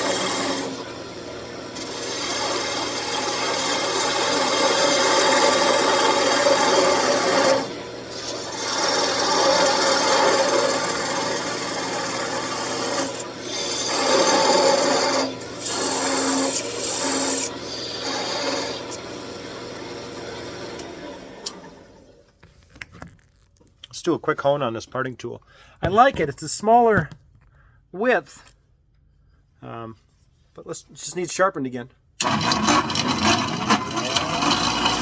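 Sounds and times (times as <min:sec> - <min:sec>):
parting tool cutting spinning wood: 0:00.0 - 0:21.7, 0:32.2 - 0:35.0
wood lathe humming: 0:00.0 - 0:21.7, 0:32.2 - 0:35.0.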